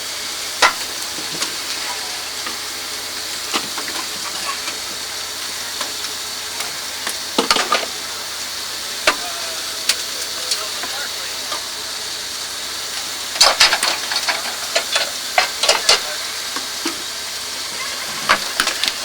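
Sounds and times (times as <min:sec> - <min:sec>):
steam locomotive hissing: 0:00.0 - 0:19.0
sharp metal clanks and clicks: 0:13.4 - 0:16.1.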